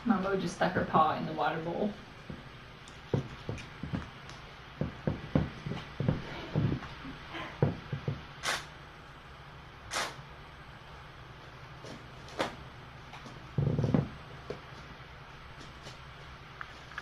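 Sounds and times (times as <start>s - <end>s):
cat hissing: 8.4s - 8.7s, 9.9s - 10.2s.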